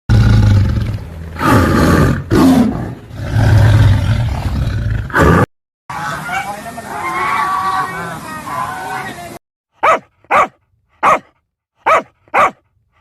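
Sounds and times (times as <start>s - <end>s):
big cat roaring: 0.1s - 5.5s.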